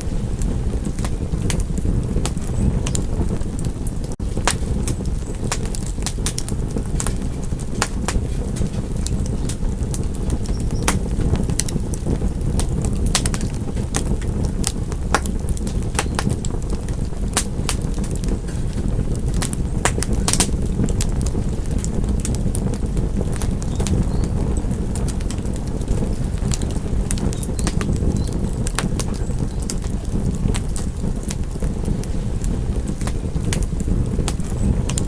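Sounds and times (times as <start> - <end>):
low fire rumble: 0.0 - 35.0
wood fire crackling: 0.0 - 35.0.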